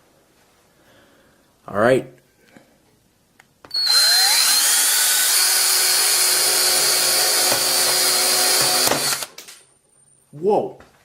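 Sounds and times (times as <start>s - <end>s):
cordless drill whining: 3.7s - 9.4s.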